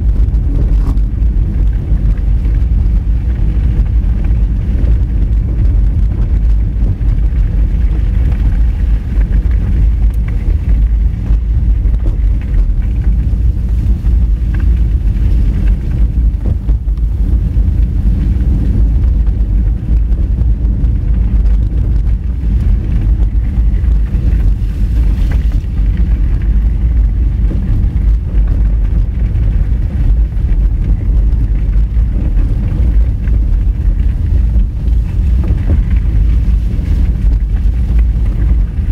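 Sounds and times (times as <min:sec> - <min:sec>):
tyres rumbling on gravel: 0:00.0 - 0:38.9
wind noise on microphone: 0:00.0 - 0:38.9.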